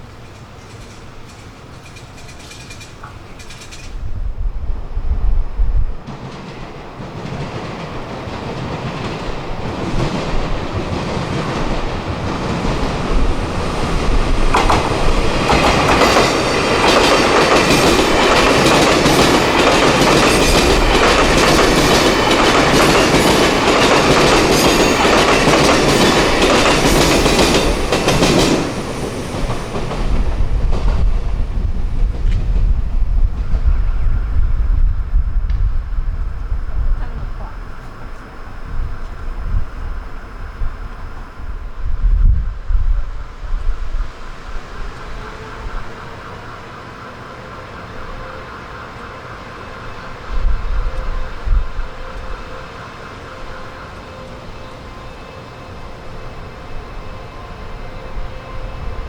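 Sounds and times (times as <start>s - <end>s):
train wheels clattering over joints: 0.2s - 4.0s, 6.1s - 31.2s.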